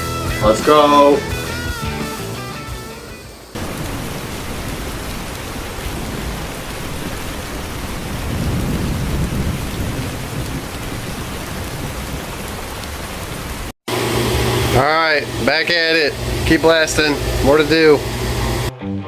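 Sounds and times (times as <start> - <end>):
air compressor engine rumble: 0.0 - 3.6, 13.9 - 18.7
sandblaster rushing hiss: 0.0 - 3.6, 13.9 - 18.7.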